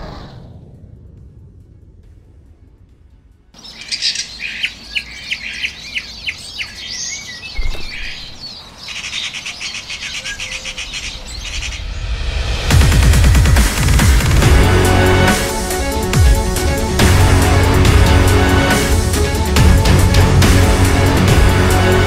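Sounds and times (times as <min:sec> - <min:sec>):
songbirds chirping: 0:03.6 - 0:12.2
low thump: 0:07.6 - 0:08.0.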